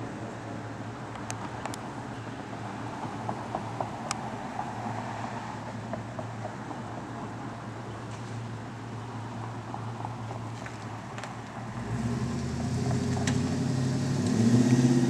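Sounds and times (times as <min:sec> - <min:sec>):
road noise: 0:00.0 - 0:15.0
pickup truck engine drone: 0:11.6 - 0:15.0.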